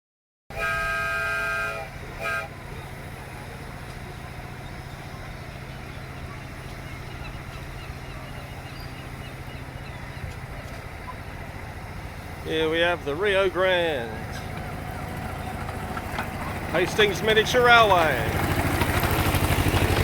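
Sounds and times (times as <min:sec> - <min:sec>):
short horn toot: 0:00.5 - 0:02.6
locomotive horn blast: 0:00.5 - 0:03.8
locomotive running rumble: 0:00.5 - 0:20.0.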